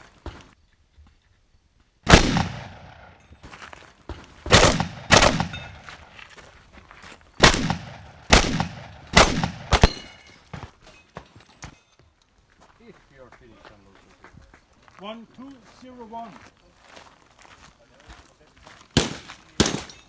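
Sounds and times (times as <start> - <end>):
shotgun shots echoing: 2.1 - 3.2, 4.5 - 6.2, 7.4 - 10.3, 19.0 - 20.0.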